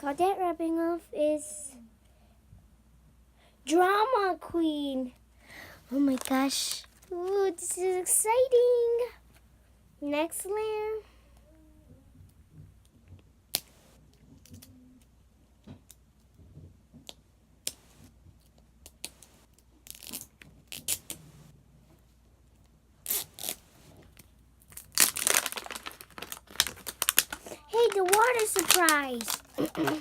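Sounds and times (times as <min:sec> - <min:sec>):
plastic wrapping crinkling and tearing: 0:05.9 - 0:07.2, 0:23.1 - 0:30.0.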